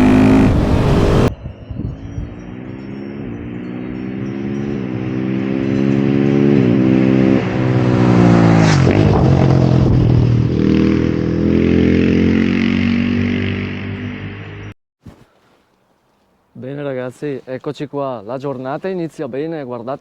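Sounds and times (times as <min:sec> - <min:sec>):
motorcycle engine revving: 0:00.0 - 0:01.3, 0:02.2 - 0:14.7.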